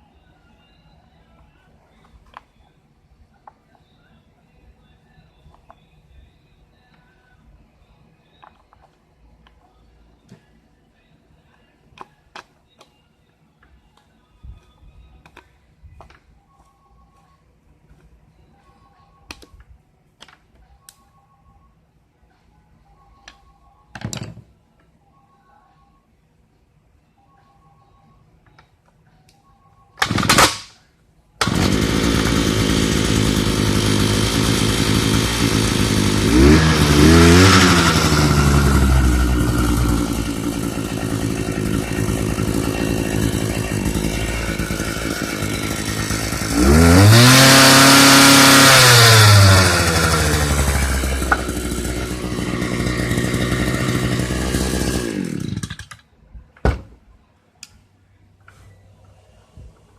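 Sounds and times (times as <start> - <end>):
two-stroke engine revving: 31.4 - 55.9.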